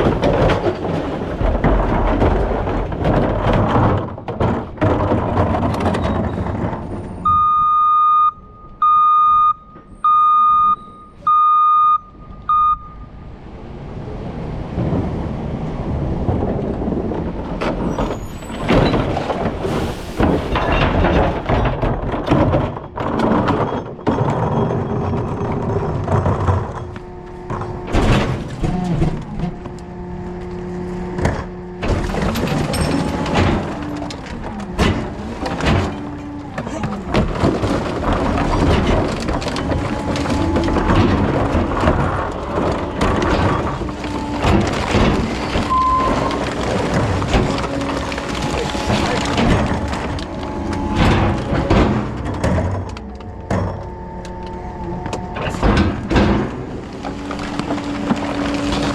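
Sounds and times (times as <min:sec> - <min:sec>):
clanks and thuds: 0:00.0 - 0:07.6, 0:14.7 - 0:58.9
truck reverse alarm beeping: 0:07.2 - 0:13.2, 0:45.7 - 0:46.3.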